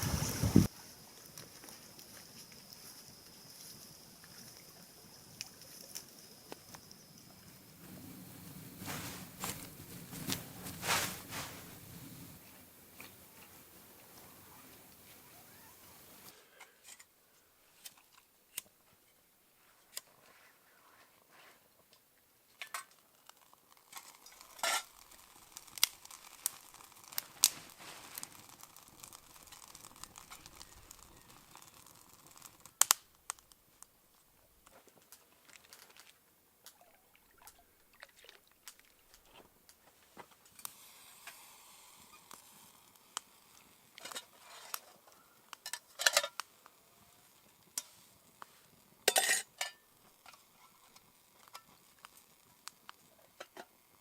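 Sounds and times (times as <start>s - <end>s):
faint hiss: 0.0s - 54.0s
cookware and utensils clinking: 49.1s - 50.4s.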